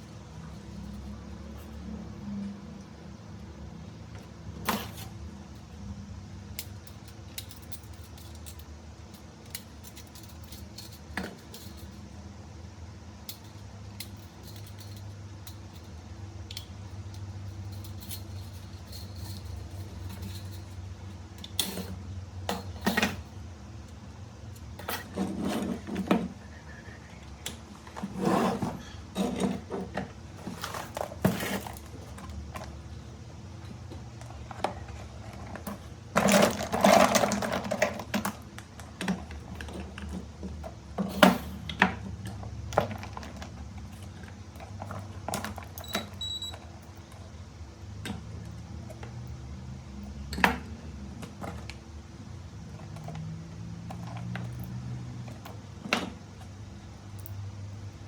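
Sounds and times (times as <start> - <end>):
small hard parts clicking and rattling: 6.5 - 12.1, 13.2 - 26.4, 27.2 - 47.3.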